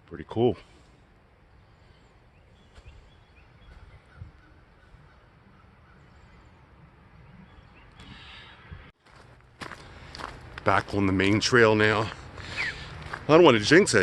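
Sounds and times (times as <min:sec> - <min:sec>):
faint short bird calls: 0:01.6 - 0:06.6, 0:07.3 - 0:08.9.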